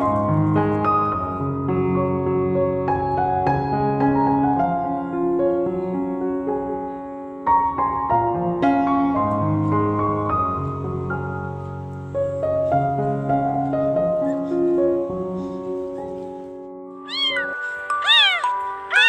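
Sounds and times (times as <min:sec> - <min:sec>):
slow piano melody: 0:00.0 - 0:19.0.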